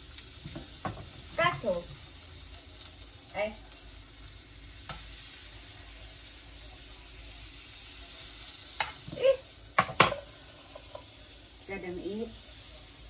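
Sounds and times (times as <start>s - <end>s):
butter sizzling in a wok: 0.0s - 13.0s
utensil knocking against pan: 9.8s - 10.3s.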